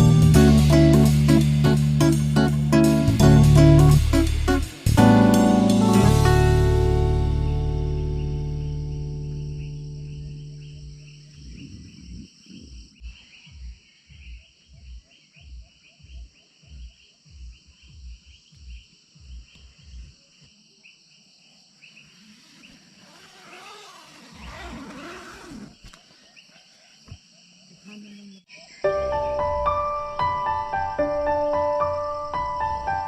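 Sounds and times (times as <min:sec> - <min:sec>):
background music: 0:00.0 - 0:11.3, 0:28.8 - 0:33.0
insects chirring: 0:07.8 - 0:33.0.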